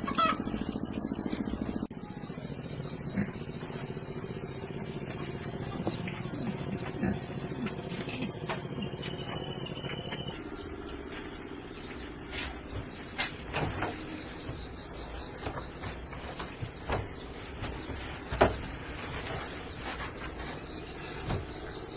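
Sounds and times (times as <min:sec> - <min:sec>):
low bending animal calls: 0:00.0 - 0:11.0
crickets trilling: 0:00.0 - 0:21.9.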